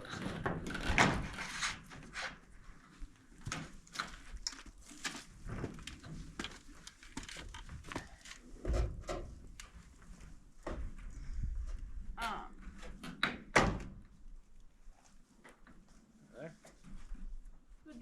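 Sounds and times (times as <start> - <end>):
plastic roofing panel being handled: 0.1 - 11.0.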